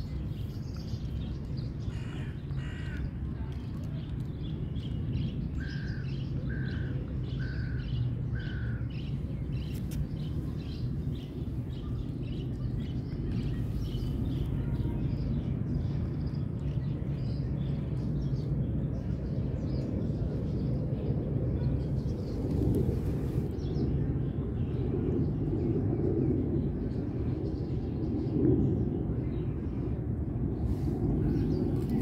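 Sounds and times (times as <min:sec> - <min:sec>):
small birds chirping: 0:00.0 - 0:20.9, 0:30.6 - 0:32.0
low background rumble: 0:00.0 - 0:32.0.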